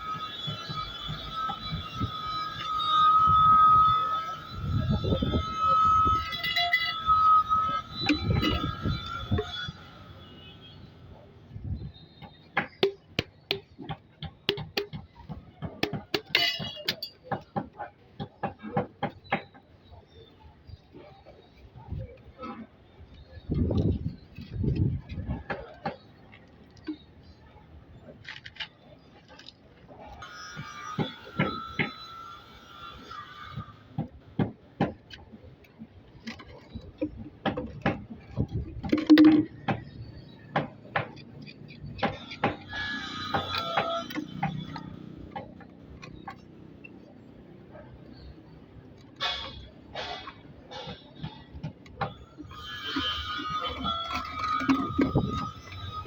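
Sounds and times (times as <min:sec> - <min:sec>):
low pitched squeak: 0:00.0 - 0:12.5, 0:30.0 - 0:34.0, 0:41.2 - 0:56.0
sharp knocks and clinks: 0:12.2 - 0:19.6
sharp clicks and knocks: 0:34.0 - 0:46.9.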